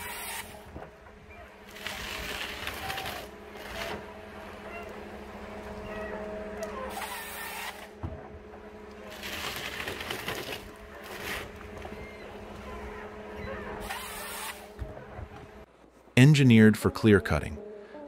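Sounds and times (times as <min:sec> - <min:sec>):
forestry machine engine hum: 0:00.0 - 0:18.0
hydraulic hissing: 0:13.7 - 0:14.8.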